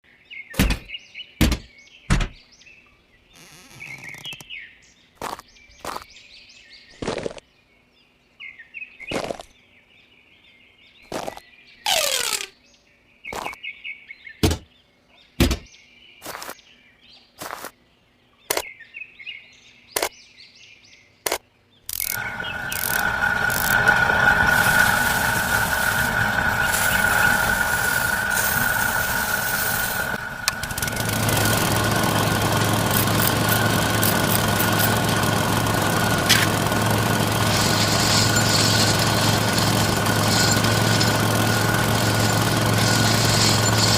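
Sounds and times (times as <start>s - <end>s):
small motor whining: 3.4s - 4.4s, 21.9s - 43.9s
sharp clicks and knocks: 36.2s - 36.6s.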